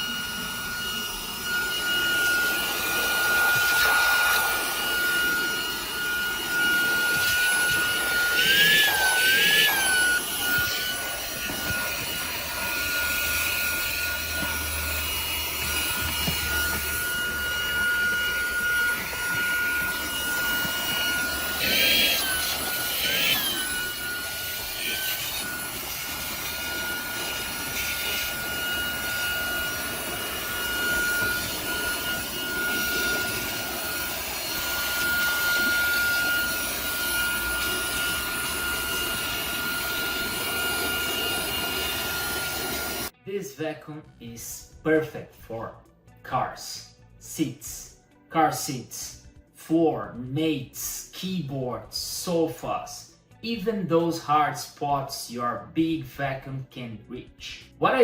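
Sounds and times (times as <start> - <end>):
handheld vacuum motor whining: 0.0 - 43.2.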